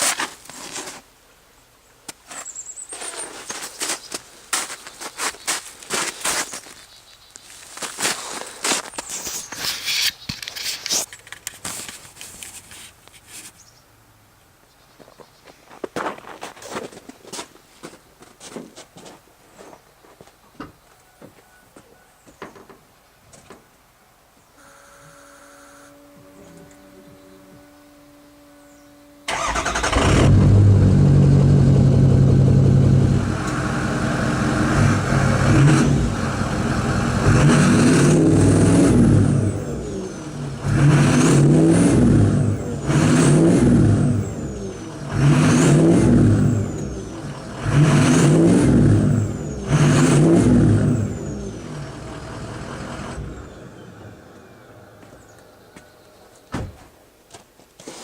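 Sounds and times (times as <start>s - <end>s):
diesel truck engine revving: 29.3s - 55.6s.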